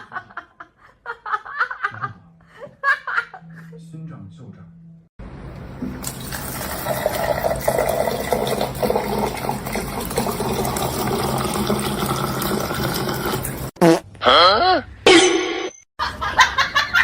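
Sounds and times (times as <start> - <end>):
running water: 5.6 - 13.8.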